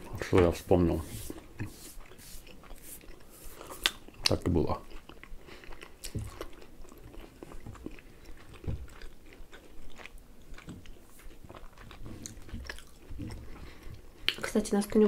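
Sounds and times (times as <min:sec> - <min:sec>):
pizza chewing with crust crunches: 0:01.4 - 0:14.4.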